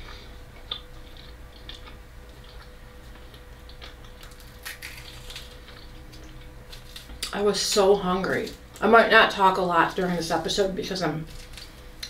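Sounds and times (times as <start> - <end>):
person chewing food: 0.0 - 7.3
faint steady hum: 0.0 - 12.0.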